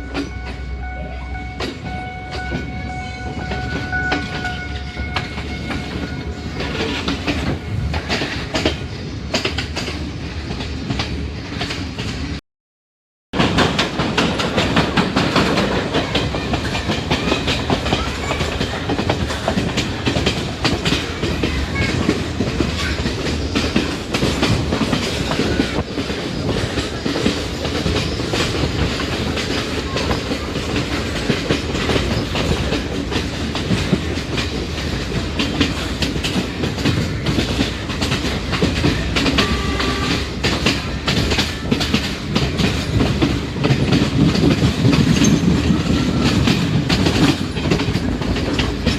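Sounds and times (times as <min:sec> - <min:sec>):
train running noise: 0:00.0 - 0:12.4, 0:13.4 - 0:48.9
wheels clattering over rail joints: 0:13.4 - 0:48.9.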